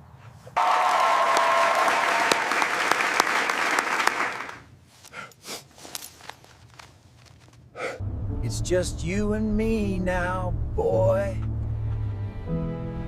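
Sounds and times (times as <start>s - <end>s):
crowd applauding: 0.6s - 4.7s.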